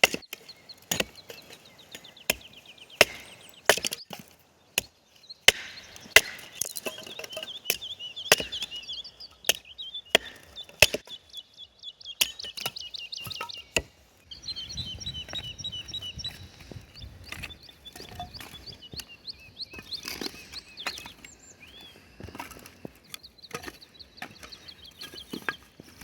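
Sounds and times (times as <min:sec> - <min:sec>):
axe chopping wood: 0:00.0 - 0:01.2, 0:02.3 - 0:04.9, 0:05.5 - 0:08.8, 0:09.5 - 0:11.1
songbird chirping: 0:00.0 - 0:26.0.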